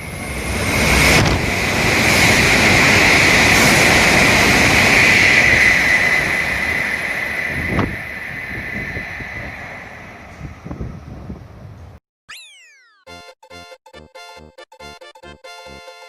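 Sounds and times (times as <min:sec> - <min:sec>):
high-speed train passing: 0:00.0 - 0:12.0.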